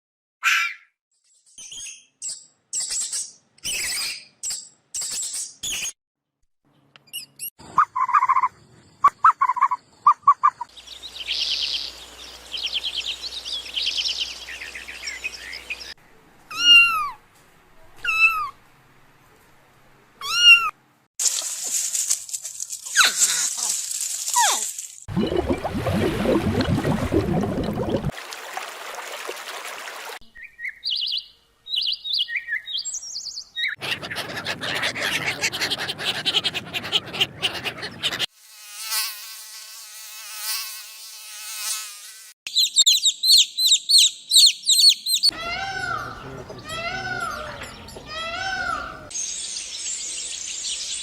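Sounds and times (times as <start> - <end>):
animal calls and cries: 7.6 - 10.7, 16.5 - 17.2, 17.8 - 18.6, 20.2 - 20.8, 33.6 - 38.3, 42.6 - 49.2.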